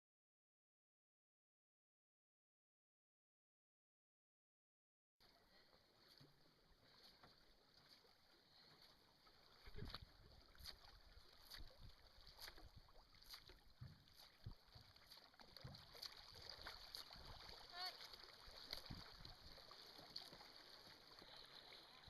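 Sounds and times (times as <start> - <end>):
canoe paddles through water: 5.2 - 22.0.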